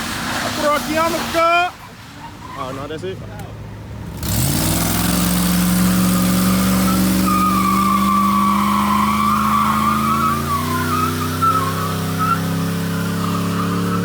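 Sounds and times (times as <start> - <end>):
car engine at high revs: 4.0 - 14.0
tyres squealing: 5.6 - 14.0.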